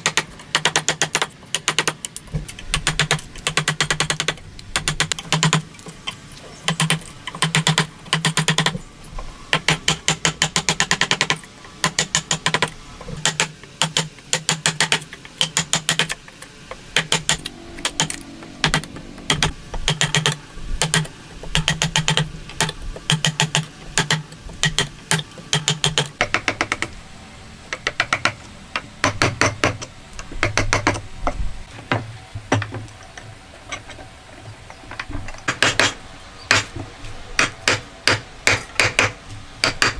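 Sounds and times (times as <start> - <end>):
rapid mechanical clicking: 0.0 - 8.8, 9.5 - 27.0, 27.7 - 31.4, 35.0 - 36.7, 37.4 - 39.9
low hum: 16.6 - 21.7.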